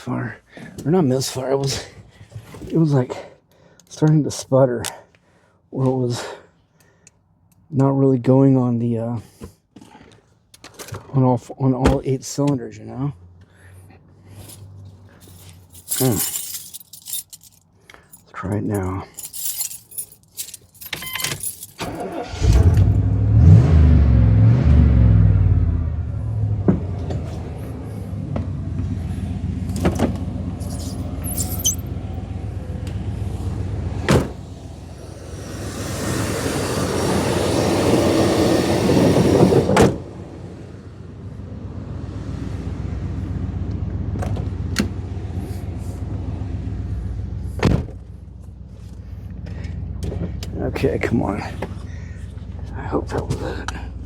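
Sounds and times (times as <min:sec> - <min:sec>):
road rumble: 0:09.3 - 0:54.0
keys jangling: 0:14.4 - 0:22.1, 0:29.7 - 0:32.2
car engine starting and idling: 0:21.4 - 0:54.0.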